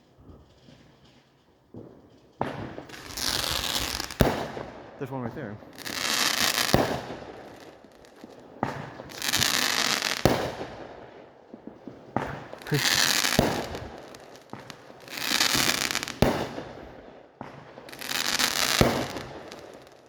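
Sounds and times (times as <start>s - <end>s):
fireworks banging: 0.0s - 20.0s
fireworks crackling: 0.0s - 20.0s.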